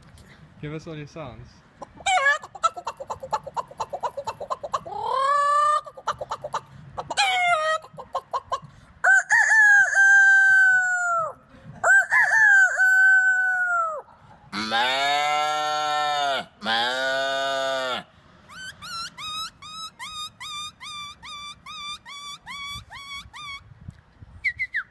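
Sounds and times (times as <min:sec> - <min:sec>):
man imitating hen clucks: 0:01.8 - 0:23.6
man imitating rooster crows: 0:09.1 - 0:14.0, 0:14.6 - 0:18.0
deep drawn-out animal call: 0:13.4 - 0:23.6.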